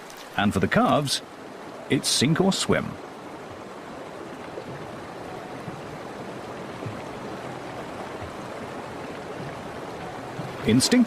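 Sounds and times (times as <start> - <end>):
river water rushing: 0.0 - 11.0
faint low thuds: 3.4 - 11.0.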